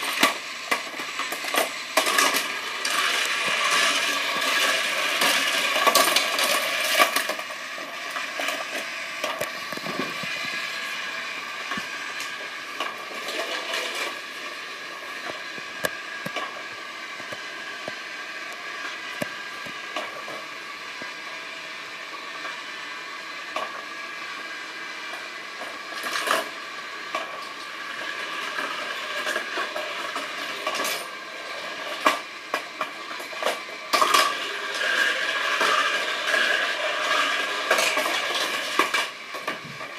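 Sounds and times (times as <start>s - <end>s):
toy cars clattering on plastic: 0.0s - 10.6s, 25.1s - 39.9s
steady mechanical whir: 0.0s - 39.9s.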